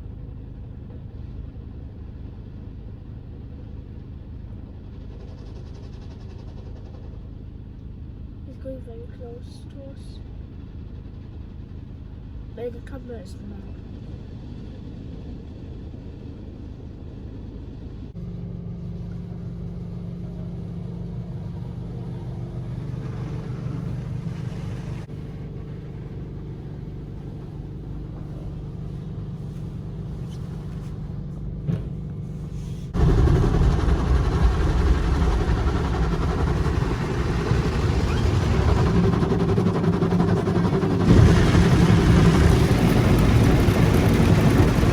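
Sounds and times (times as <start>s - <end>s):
car wash motors humming: 7.0s - 44.9s
car wash water rushing: 21.2s - 25.4s, 32.6s - 44.9s.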